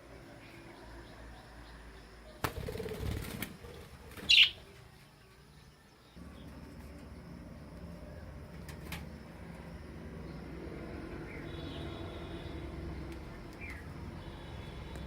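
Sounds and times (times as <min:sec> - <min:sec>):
bird wings flapping: 0:02.4 - 0:04.6
high bird chirp: 0:04.2 - 0:04.7.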